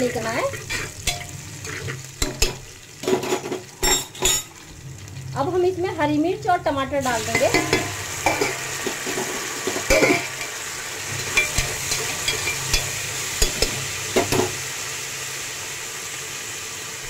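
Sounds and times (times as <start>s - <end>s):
vegetables sizzling in oil: 0.0s - 17.0s
spoon scraping and knocking pot: 0.5s - 4.5s, 7.4s - 10.5s, 11.2s - 14.6s.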